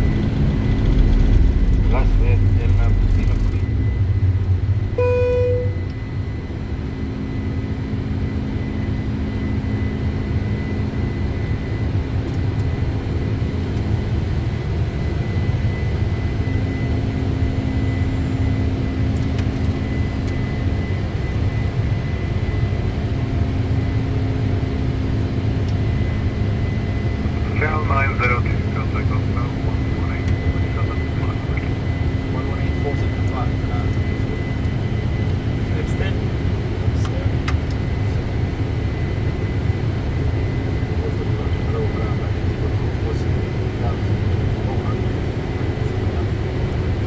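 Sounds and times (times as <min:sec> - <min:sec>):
airflow and engine rumble: 0:00.0 - 0:47.0
faint high whine: 0:01.9 - 0:06.4
short single tone: 0:04.9 - 0:06.1.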